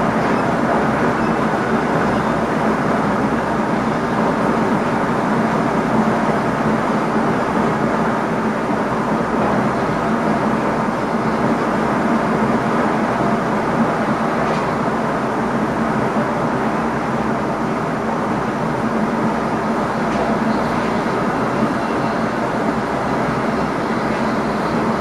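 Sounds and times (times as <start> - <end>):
train wheels rolling on rails: 0.0 - 25.0.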